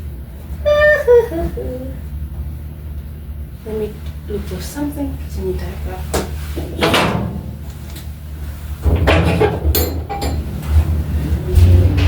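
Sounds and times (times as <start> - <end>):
steady low hum: 0.0 - 12.0
knocks of kitchen items: 8.9 - 10.6.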